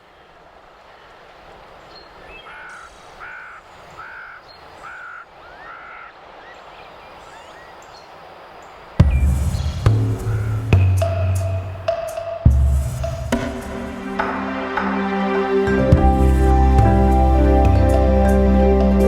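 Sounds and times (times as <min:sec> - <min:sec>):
faint outdoor background: 0:00.0 - 0:19.0
loud music with drums: 0:09.0 - 0:18.0.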